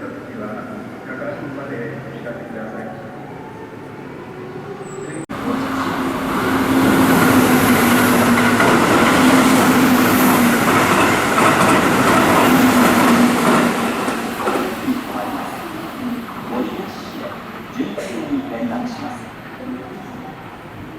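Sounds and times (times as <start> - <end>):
electric train rushing past: 0.0 - 20.9.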